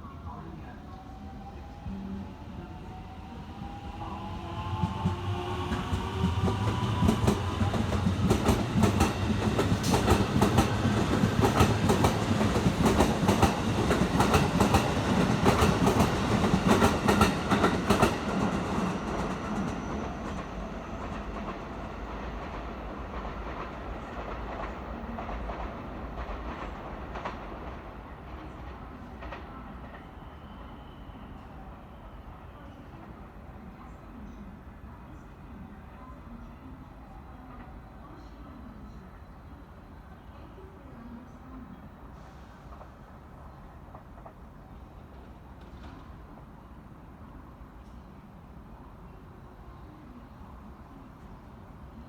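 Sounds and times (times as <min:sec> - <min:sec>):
electric train passing: 0:00.0 - 0:32.6.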